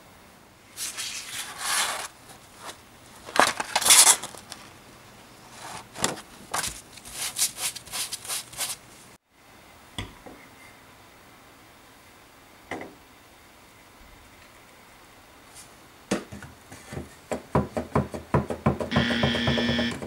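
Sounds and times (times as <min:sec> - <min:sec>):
sandpaper rustling and scraping: 0:00.8 - 0:02.8, 0:06.6 - 0:08.9.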